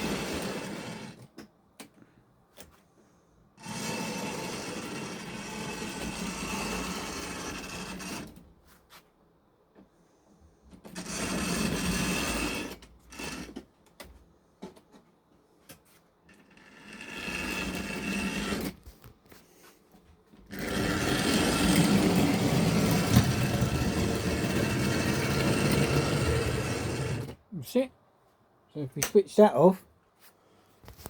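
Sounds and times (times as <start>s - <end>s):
wheels rattling over rails: 0.0s - 1.3s, 3.6s - 8.4s, 20.5s - 27.4s
small electric motor whirring: 20.5s - 27.4s.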